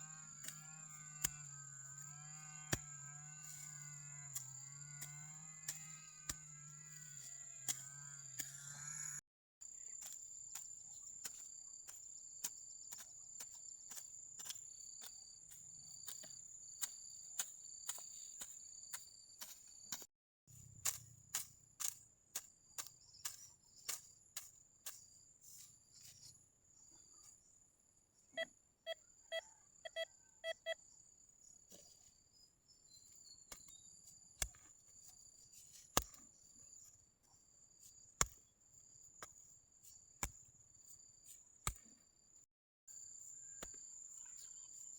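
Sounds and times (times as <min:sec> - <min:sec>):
metal detector beeps: 0:28.4 - 0:30.8.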